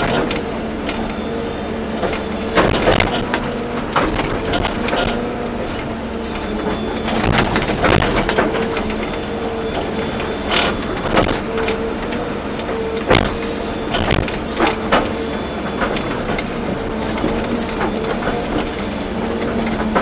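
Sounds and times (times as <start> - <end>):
excavator engine and hydraulic drone: 0.0 - 20.0
hydraulic whine: 0.0 - 20.0
sharp metal knocks and clanks: 2.0 - 5.3, 6.8 - 9.0, 10.6 - 11.8, 13.0 - 15.2.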